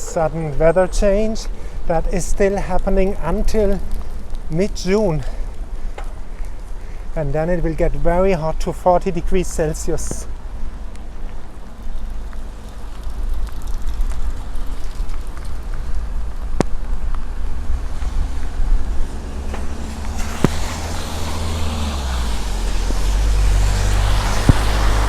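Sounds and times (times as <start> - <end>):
steady low rumble: 9.6 - 25.0
car passing: 11.4 - 25.0.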